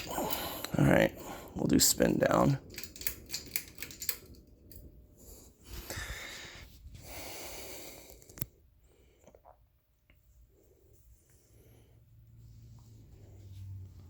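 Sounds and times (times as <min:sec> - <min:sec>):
breathy noise: 0:00.0 - 0:01.6.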